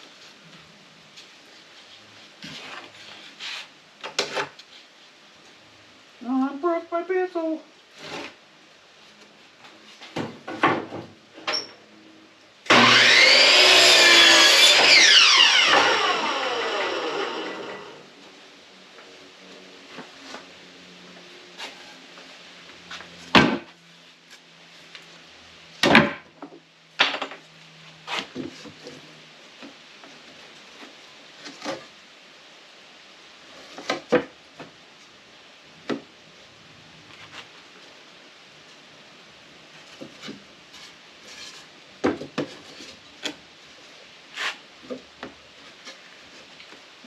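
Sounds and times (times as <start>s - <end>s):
wood and tools knocking: 10.1s - 11.1s, 42.0s - 43.4s.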